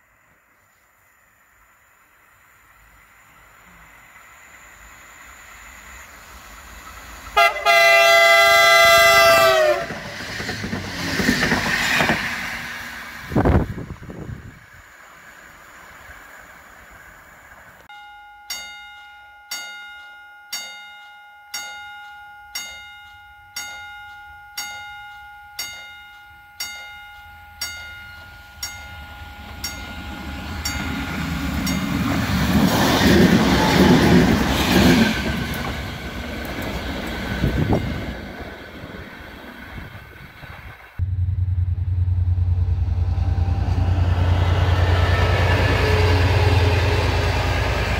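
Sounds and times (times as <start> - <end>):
train passing rumble: 1.6 - 17.9, 26.6 - 47.9
railway warning bell: 17.8 - 34.9, 41.0 - 47.9.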